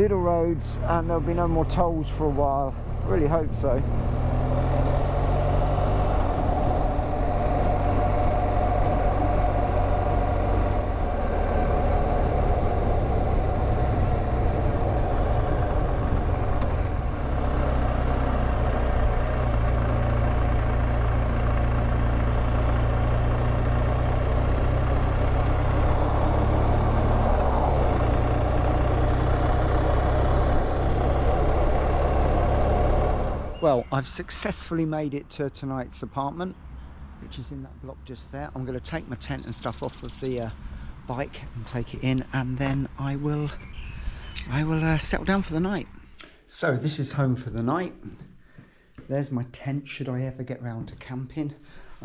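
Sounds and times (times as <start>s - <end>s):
motorcycle engine running: 0.0s - 33.6s.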